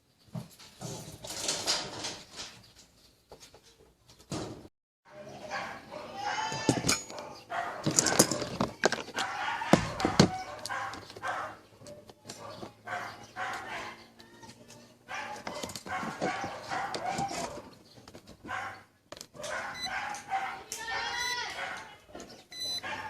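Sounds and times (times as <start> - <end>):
animal calls: 5.2 - 17.7.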